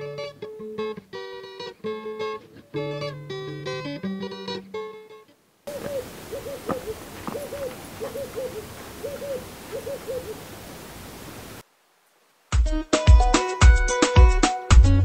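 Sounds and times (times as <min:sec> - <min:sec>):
steady hiss: 0:05.4 - 0:12.7
bird hooting: 0:05.7 - 0:11.6.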